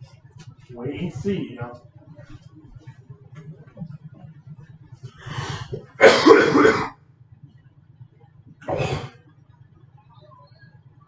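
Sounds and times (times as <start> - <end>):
person coughing: 5.8 - 6.9, 8.6 - 9.2.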